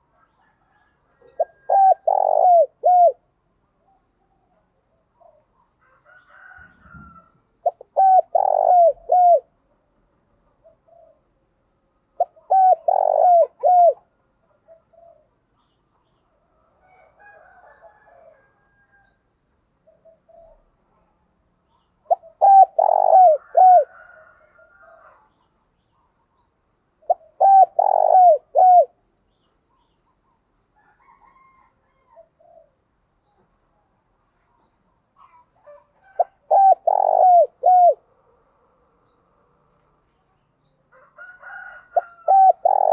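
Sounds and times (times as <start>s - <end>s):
doves cooing: 0.0s - 3.3s, 6.4s - 9.6s, 12.2s - 15.4s, 22.1s - 25.2s, 27.0s - 29.0s, 31.0s - 32.9s, 35.2s - 38.2s, 41.0s - 42.9s.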